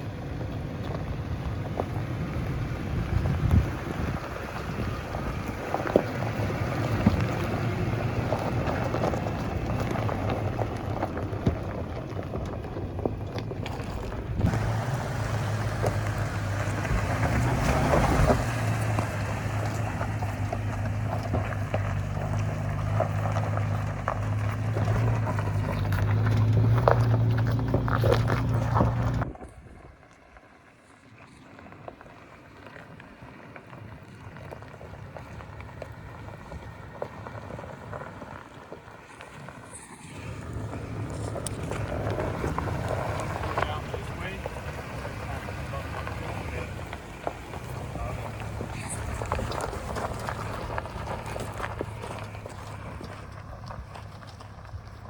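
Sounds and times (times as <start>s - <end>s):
engine humming: 0.0s - 55.0s
wind noise on microphone: 1.2s - 14.6s, 27.4s - 30.1s.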